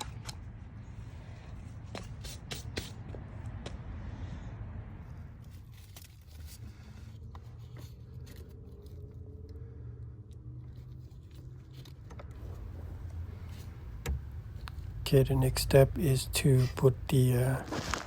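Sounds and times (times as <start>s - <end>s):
faint clicks and scrapes: 5.2s - 15.0s
steady low rumble: 12.3s - 18.0s.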